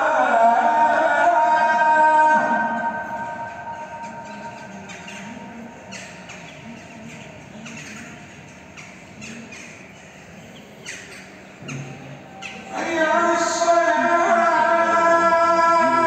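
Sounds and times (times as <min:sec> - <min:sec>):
birds chirping: 0:02.6 - 0:14.4.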